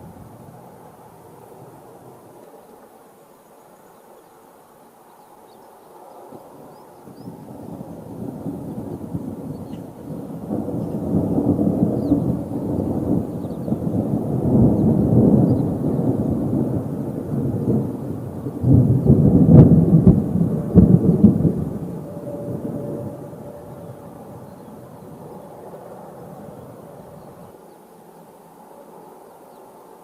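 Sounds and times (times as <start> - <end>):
thunder rumbling: 0.0 - 2.4, 6.4 - 27.6.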